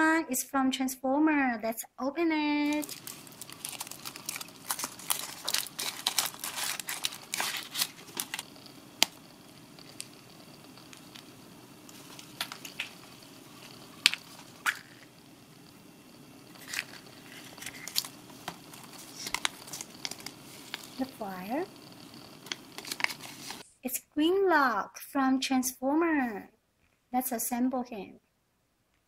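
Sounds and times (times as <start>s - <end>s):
wrapper crinkling and tearing: 2.6s - 15.2s, 16.5s - 21.2s, 21.8s - 23.6s.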